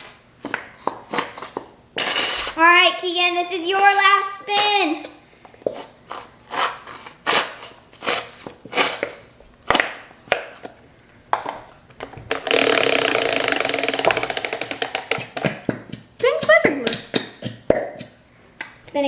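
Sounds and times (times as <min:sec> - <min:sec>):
prize wheel ticking: 0:12.5 - 0:15.3.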